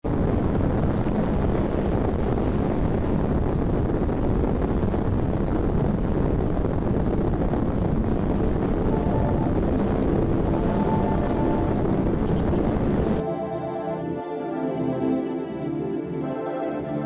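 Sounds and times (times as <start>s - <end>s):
wind rushing over microphone: 0.0s - 13.3s.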